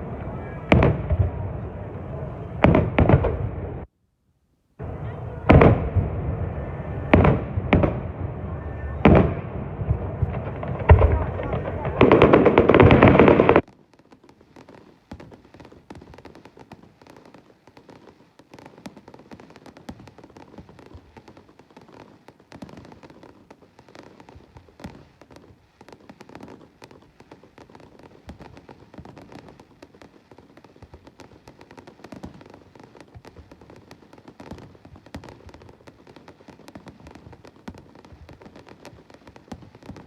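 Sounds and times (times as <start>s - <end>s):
fireworks crackling and popping: 0.0s - 3.9s, 4.8s - 40.0s
loud firework burst: 0.0s - 3.9s, 4.8s - 13.7s.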